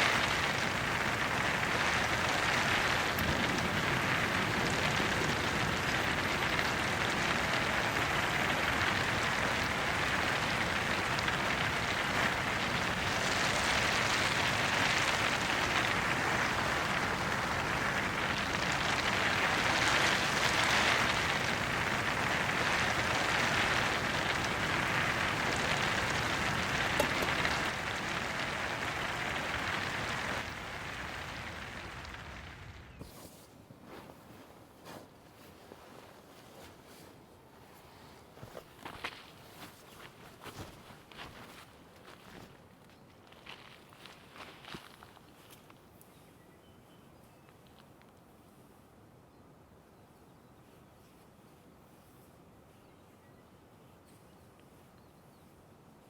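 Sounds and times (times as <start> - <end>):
heavy rain on tent fabric: 0.0 - 33.1, 33.8 - 42.6, 43.3 - 45.7.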